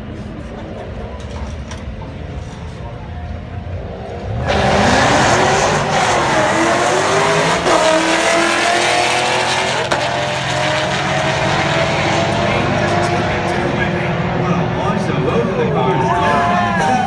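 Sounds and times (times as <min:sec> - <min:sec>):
car engine revving hard: 0:04.2 - 0:15.1.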